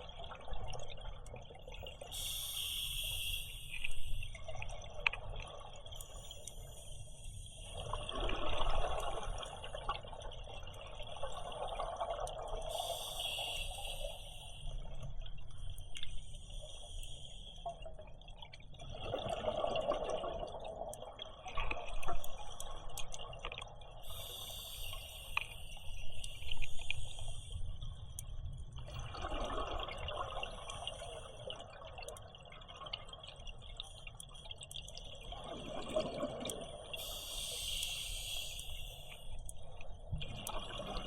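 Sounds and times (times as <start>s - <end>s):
faint scattered clicks: 0.6s - 11.4s, 12.2s - 17.9s, 21.6s - 29.0s, 30.6s - 41.0s
diver breathing through regulator: 2.1s - 4.3s, 12.7s - 14.7s, 24.1s - 27.6s, 37.0s - 39.3s
high hiss: 2.2s - 4.2s, 12.8s - 14.6s, 24.1s - 25.8s, 37.0s - 39.2s.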